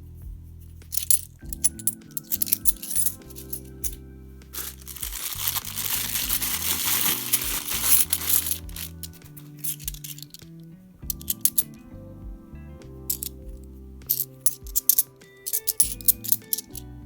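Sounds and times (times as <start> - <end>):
background music: 0.0 - 17.0
coins clinking: 0.9 - 4.0, 4.6 - 10.5, 11.1 - 11.7, 13.1 - 13.4, 14.0 - 16.8.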